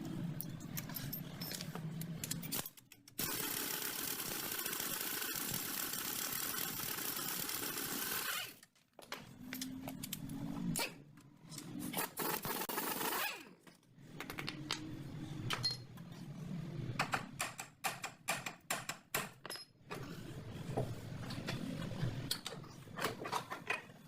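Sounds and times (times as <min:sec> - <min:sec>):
metal tools clinking: 0:00.4 - 0:03.0.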